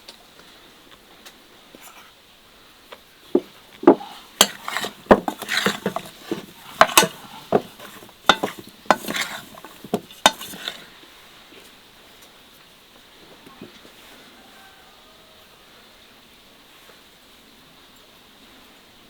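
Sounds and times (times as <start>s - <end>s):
utensils clinking against dishes: 3.4s - 10.8s.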